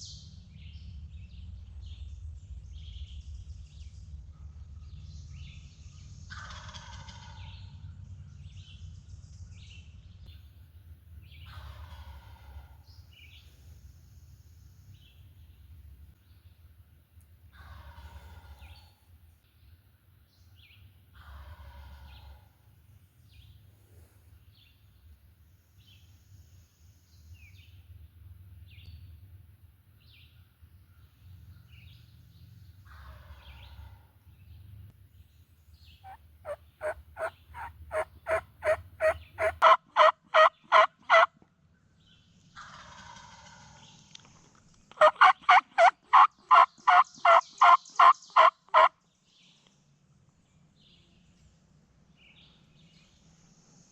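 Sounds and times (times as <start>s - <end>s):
rapid turkey yelps: 6.3s - 7.4s, 11.4s - 12.8s, 36.0s - 41.3s, 45.0s - 48.9s
turkey gobbling: 6.4s - 7.4s, 11.5s - 12.8s, 36.0s - 41.3s, 45.0s - 48.9s.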